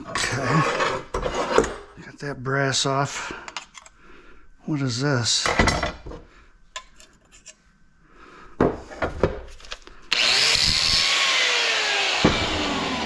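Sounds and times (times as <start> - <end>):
power tool cutting metal: 10.1 - 13.0.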